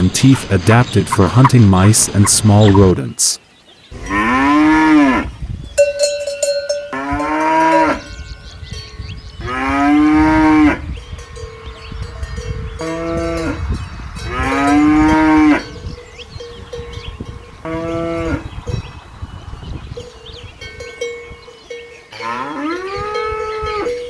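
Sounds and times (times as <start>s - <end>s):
animal calling: 0.0s - 5.4s
steady ringing tone: 5.8s - 9.0s.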